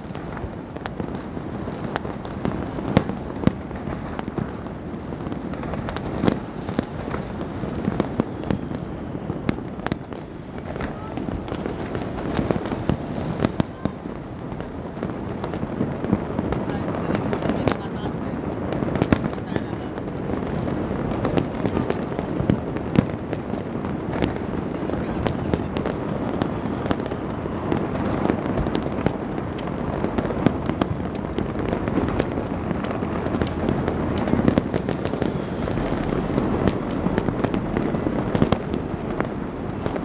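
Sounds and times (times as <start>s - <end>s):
fireworks and firecrackers exploding: 0.0s - 40.0s.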